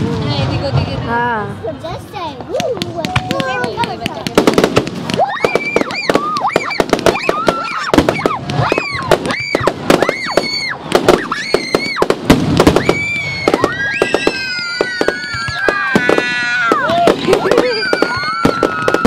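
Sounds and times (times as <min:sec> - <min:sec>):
firework bangs and crackles: 0:00.0 - 0:19.0
firework whistles: 0:04.7 - 0:19.0.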